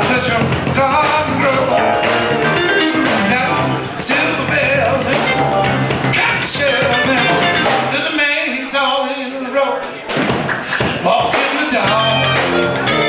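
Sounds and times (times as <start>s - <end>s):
live rhythm and blues band: 0.0s - 8.4s, 9.8s - 13.0s.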